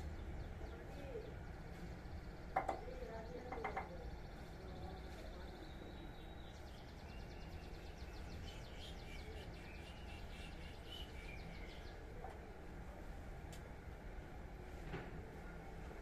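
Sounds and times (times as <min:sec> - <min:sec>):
bird chirping in trills: 0:00.0 - 0:12.0.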